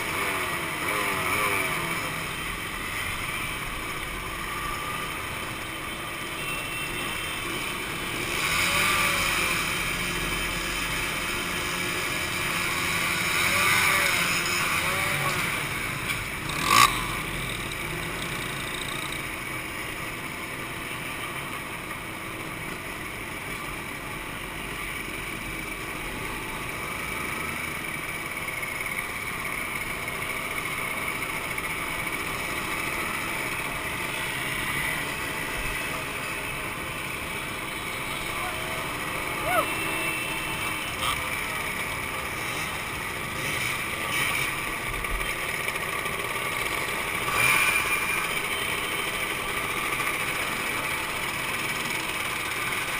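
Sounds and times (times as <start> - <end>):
two-stroke motorcycle engines: 0.0 - 52.9.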